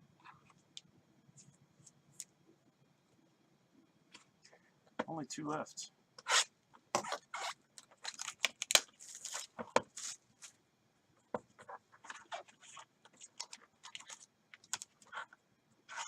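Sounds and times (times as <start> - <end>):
card packaging tearing and crinkling: 6.3 - 10.2.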